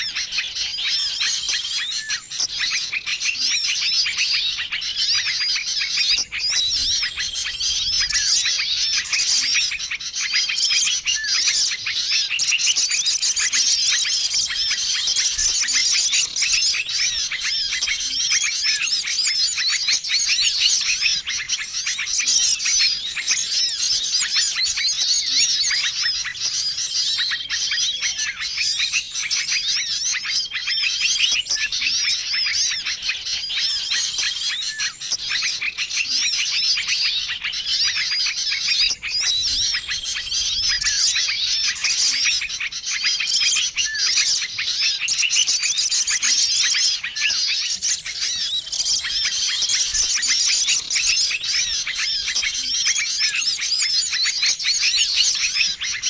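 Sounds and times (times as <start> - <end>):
chorus of songbirds chirping: 0.0 - 56.0.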